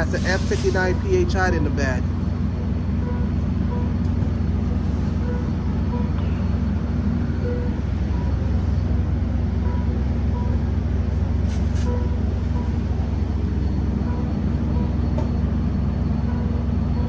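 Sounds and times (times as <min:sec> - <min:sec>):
air hisses: 0:00.0 - 0:01.1
diesel locomotive idling: 0:00.0 - 0:17.0.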